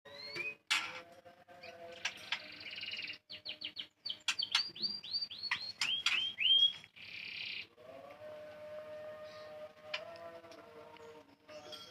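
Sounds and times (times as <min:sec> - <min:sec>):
songbird calling and whistling: 0:00.1 - 0:00.7, 0:01.6 - 0:07.7.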